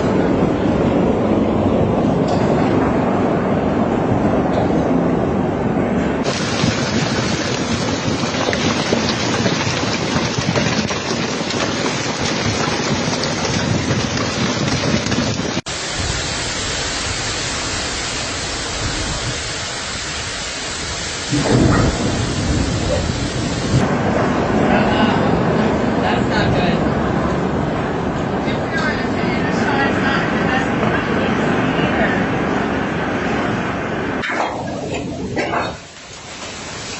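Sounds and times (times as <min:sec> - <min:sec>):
heavy rain pouring: 0:00.0 - 0:36.9
loud low rumble: 0:13.6 - 0:35.5.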